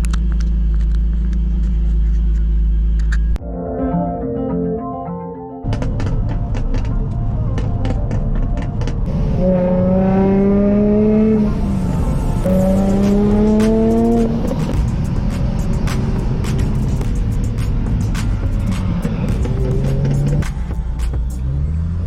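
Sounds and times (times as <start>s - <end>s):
music: 3.4s - 9.1s, 11.4s - 22.0s
car engine accelerating hard: 9.0s - 22.0s.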